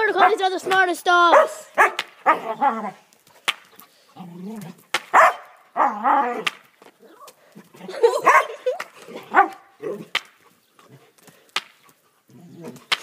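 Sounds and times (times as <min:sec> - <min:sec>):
dog barking: 0:01.3 - 0:03.0, 0:05.1 - 0:06.4, 0:08.2 - 0:08.6, 0:09.2 - 0:10.0.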